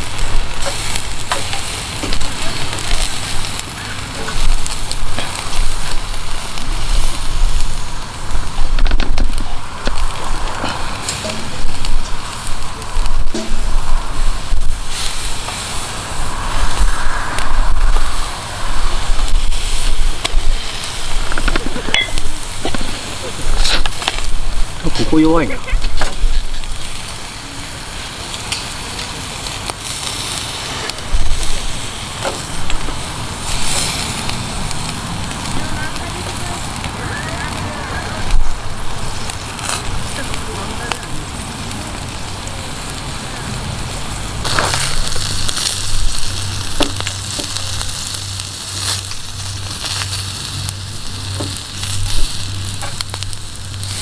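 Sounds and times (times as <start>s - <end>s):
campfire crackling: 0.0s - 54.0s
fire popping: 0.0s - 54.0s
low rumble: 4.5s - 25.0s.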